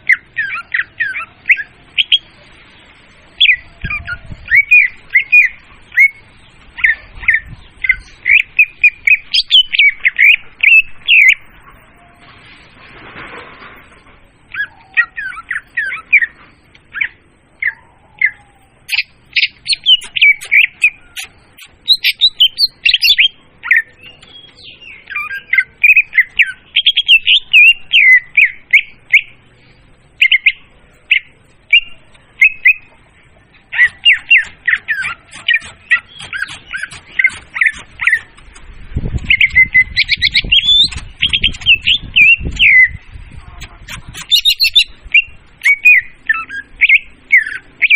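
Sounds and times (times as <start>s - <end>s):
bird song chirps and trills: 0.0s - 12.3s, 14.4s - 47.9s
low rumbling noise: 28.5s - 44.2s.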